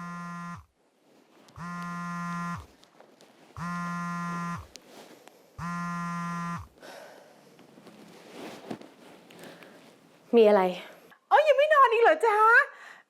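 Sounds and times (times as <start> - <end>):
telephone ringing: 1.6 - 2.7, 3.6 - 4.7, 5.6 - 6.7.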